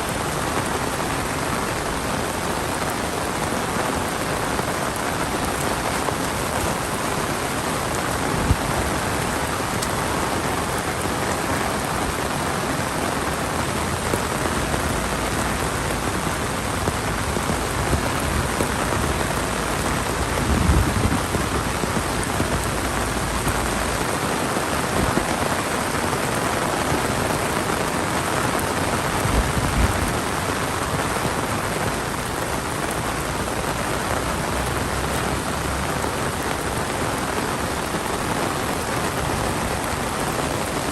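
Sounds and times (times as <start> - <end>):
heavy rain hissing: 0.0 - 40.9
low thumps or rumbles: 16.8 - 23.8.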